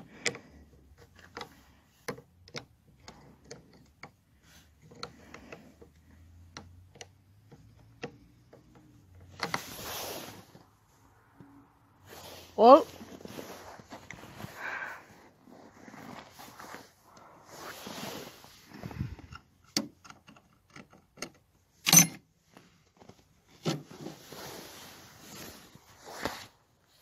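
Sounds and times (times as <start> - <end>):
hand tools clicking and scraping: 0.0 - 10.7.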